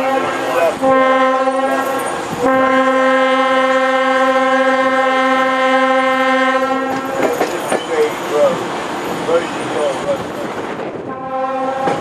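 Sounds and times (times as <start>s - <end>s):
locomotive horn blast: 0.0s - 7.4s, 11.0s - 12.0s.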